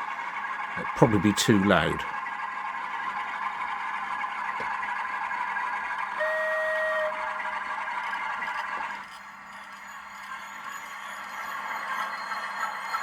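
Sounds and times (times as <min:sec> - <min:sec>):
diesel engine from small speaker: 0:00.0 - 0:09.1.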